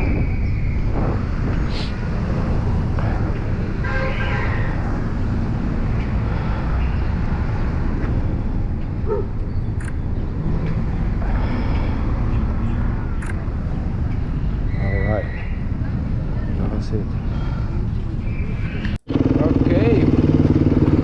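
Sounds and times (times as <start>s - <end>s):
wind rumble on microphone: 0.0s - 11.5s
vehicle horn: 3.8s - 4.8s
dirt bike engine running: 19.1s - 21.0s.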